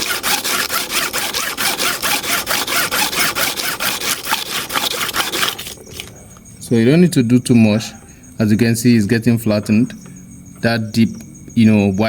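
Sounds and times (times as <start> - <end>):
blade rubbed on sandpaper: 0.0 - 5.8.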